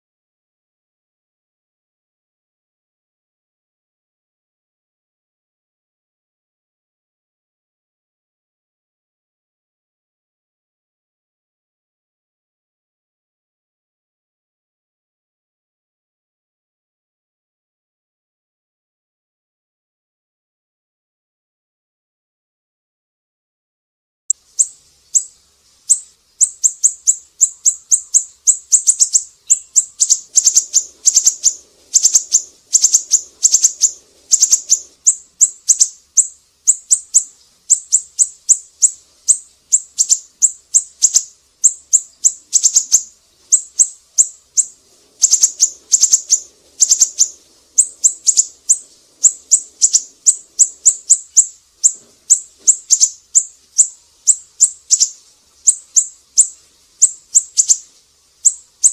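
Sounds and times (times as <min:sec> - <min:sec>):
bird chirping sharply: 0:24.4 - 0:58.9.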